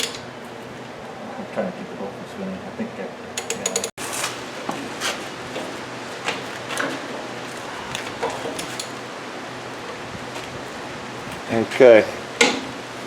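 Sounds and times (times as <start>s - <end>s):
steady background hiss: 1.4s - 13.0s
tools and parts knocking: 3.4s - 3.9s, 12.4s - 12.7s.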